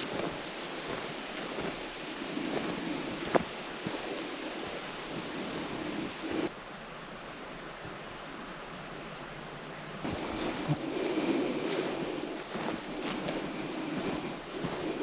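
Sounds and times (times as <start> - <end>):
insects chirping: 6.4 - 15.0
pulsing insect call: 6.5 - 10.2.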